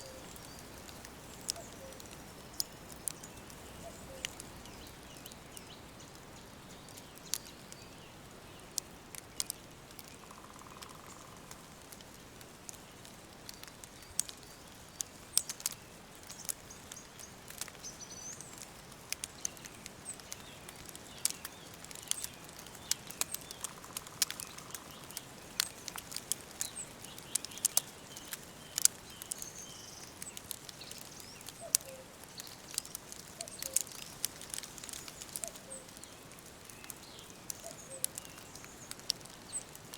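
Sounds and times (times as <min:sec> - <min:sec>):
faint bird chirps: 0:00.0 - 0:08.0, 0:26.6 - 0:39.7
soft steady hiss: 0:00.0 - 0:39.9
wood fire crackling and popping: 0:00.0 - 0:39.9.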